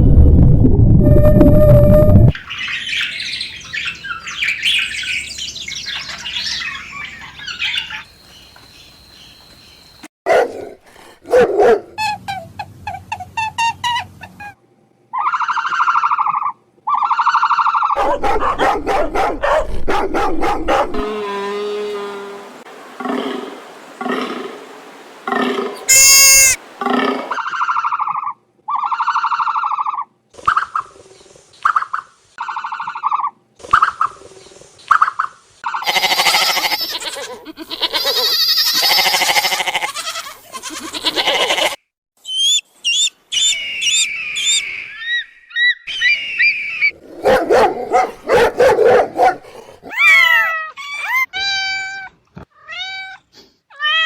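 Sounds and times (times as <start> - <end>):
animal calls: 15.1 - 24.6, 25.3 - 30.8, 42.4 - 51.5
cats meowing: 25.9 - 26.6, 49.9 - 54.0.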